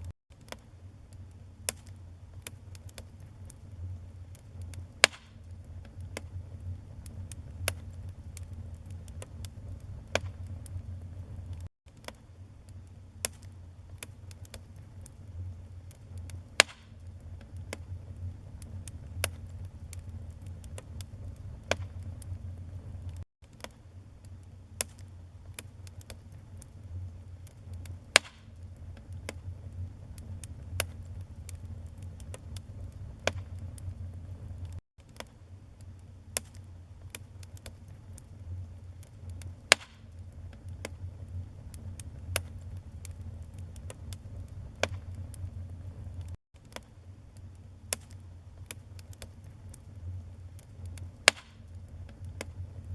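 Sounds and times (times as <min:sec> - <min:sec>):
fire low rumble: 0:00.0 - 0:23.2, 0:23.9 - 0:34.8, 0:35.5 - 0:46.4, 0:47.0 - 0:52.9
logs crackling and popping: 0:00.0 - 0:52.9.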